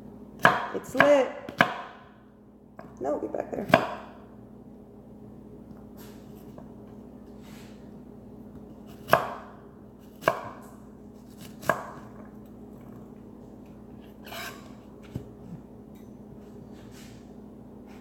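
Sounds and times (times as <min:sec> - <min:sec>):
knife chopping on cutting board: 0:00.4 - 0:02.0, 0:03.7 - 0:04.1, 0:08.6 - 0:12.1.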